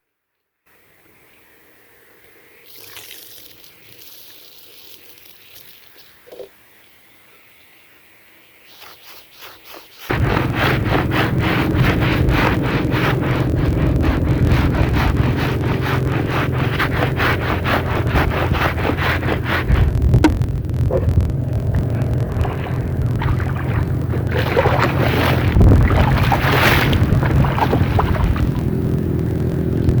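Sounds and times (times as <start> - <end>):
brush scrubbing wet rug: 8.8 - 20.4, 21.8 - 29.3
low motor hum: 10.1 - 30.0.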